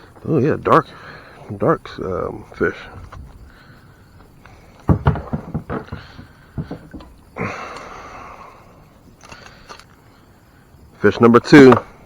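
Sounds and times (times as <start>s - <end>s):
rustling: 2.7s - 7.4s
knocks and thumps in kayak: 4.8s - 7.3s.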